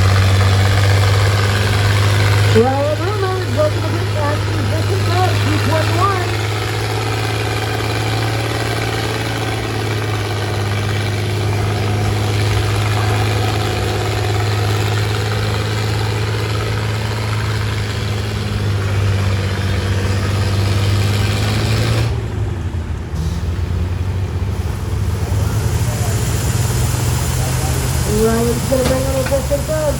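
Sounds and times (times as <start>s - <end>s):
tractor engine running: 0.0s - 29.9s
higher-pitched noise: 12.5s - 15.2s.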